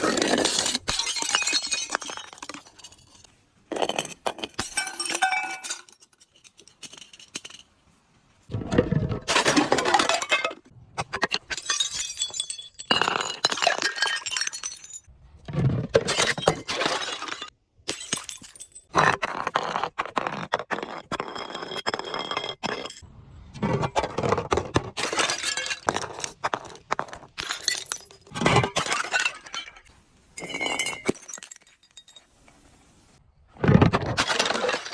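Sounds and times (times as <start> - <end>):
glass bottles breaking: 0.0 - 7.6, 9.2 - 15.1, 15.9 - 18.9, 25.0 - 32.4, 33.8 - 34.9
glass shards clinking: 3.9 - 7.6.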